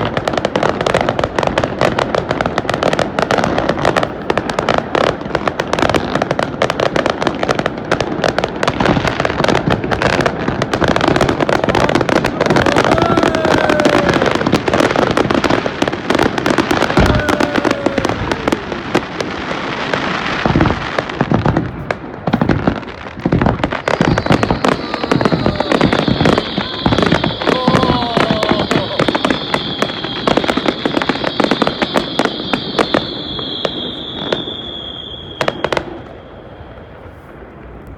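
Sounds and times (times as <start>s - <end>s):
deep firework booms: 0.0s - 37.5s
fireworks crackling: 0.0s - 37.9s
falling firework whistles: 11.0s - 21.6s, 22.3s - 37.5s.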